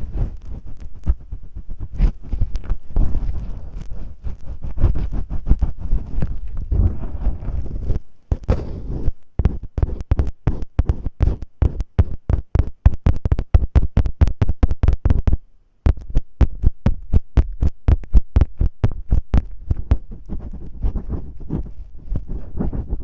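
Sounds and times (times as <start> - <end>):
scratching on masking tape: 0.0 - 23.0
dull thuds: 4.7 - 20.2.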